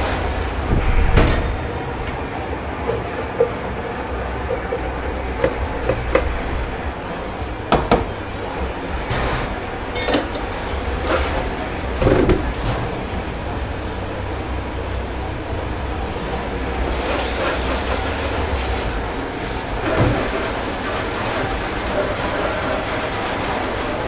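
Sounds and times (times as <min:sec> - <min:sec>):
low machine rumble: 0:00.0 - 0:16.9
dishes and utensils clinking: 0:00.7 - 0:06.4, 0:09.9 - 0:10.8.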